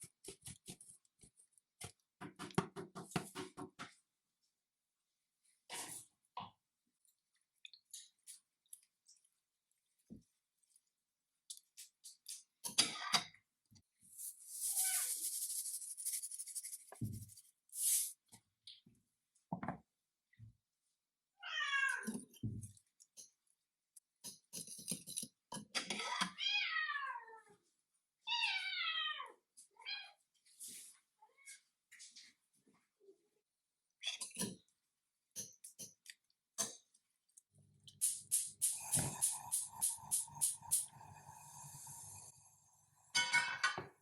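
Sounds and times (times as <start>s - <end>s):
cat meowing: 21.4s - 22.1s.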